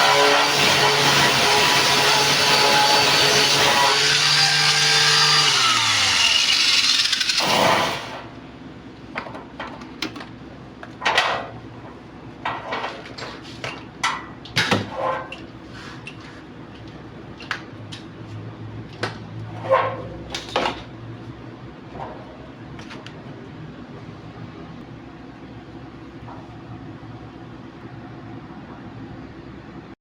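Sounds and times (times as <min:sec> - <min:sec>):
power tool running down: 0:00.0 - 0:08.2.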